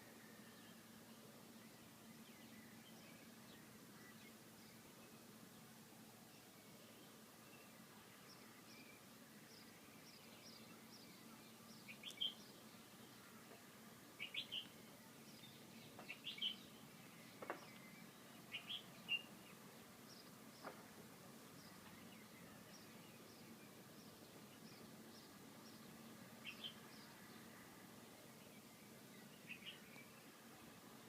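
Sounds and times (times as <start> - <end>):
low steady hum: 0.0 - 31.0
birds chirping: 6.3 - 31.0.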